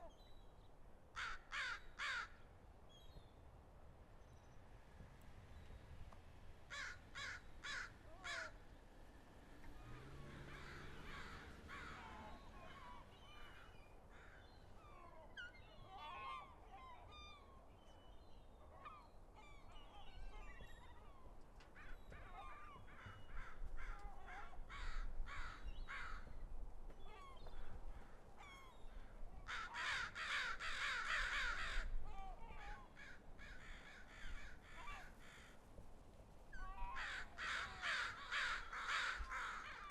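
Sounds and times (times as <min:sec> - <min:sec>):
birds calling and chirping: 0:09.5 - 0:35.4.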